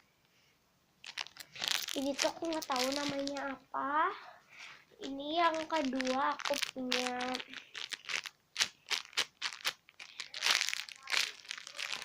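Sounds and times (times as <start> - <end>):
plastic wrapping crinkling: 1.0 - 3.6, 4.6 - 12.0.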